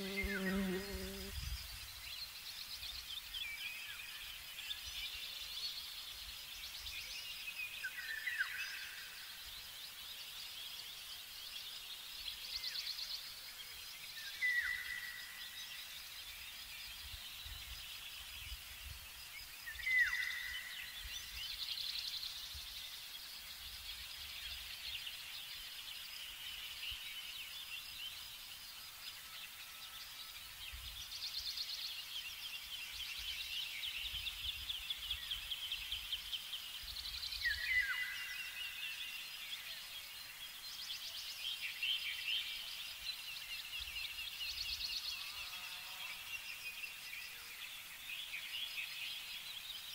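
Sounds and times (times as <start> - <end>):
songbirds trilling: 0.0 - 2.4.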